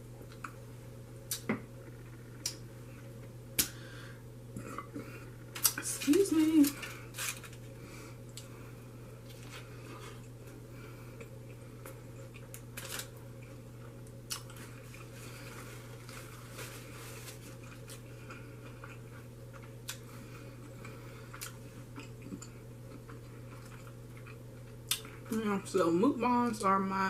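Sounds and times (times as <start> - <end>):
steady low hum: 0.0 - 27.0
person chewing food: 9.2 - 16.5, 17.1 - 25.3.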